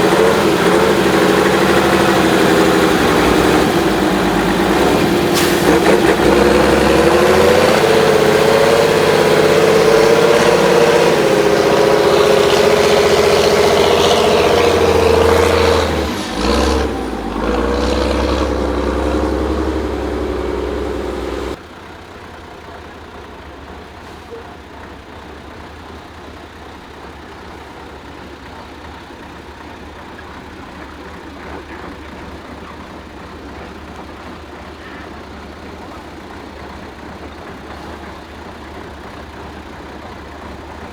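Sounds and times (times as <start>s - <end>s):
truck diesel engine revving: 0.0s - 21.6s.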